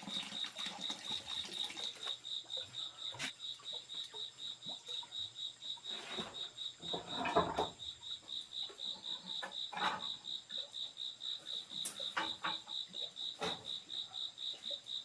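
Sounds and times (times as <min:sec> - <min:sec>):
cricket chirping: 0:00.0 - 0:15.0
rustling scrape: 0:05.9 - 0:07.5.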